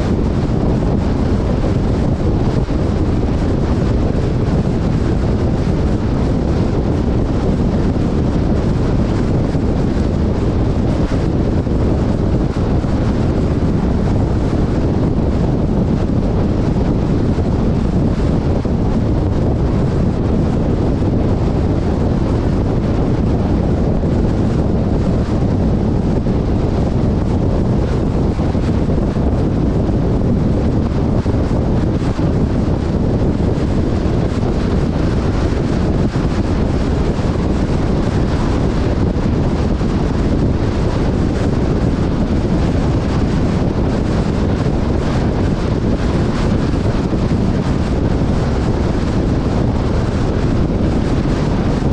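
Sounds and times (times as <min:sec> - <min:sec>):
moving vehicle noise: 0:00.0 - 0:51.9
wind buffeting microphone: 0:00.0 - 0:51.9.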